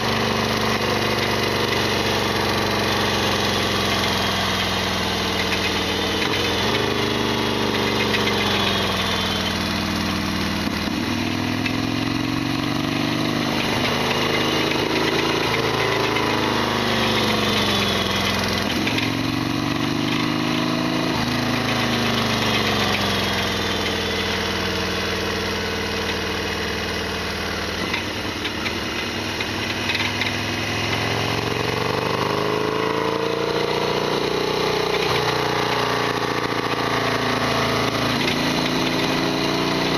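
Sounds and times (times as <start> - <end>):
motorcycle engine revving: 0.0 - 39.9
clattery engine rattle: 0.7 - 11.8, 13.5 - 20.3, 21.6 - 31.9.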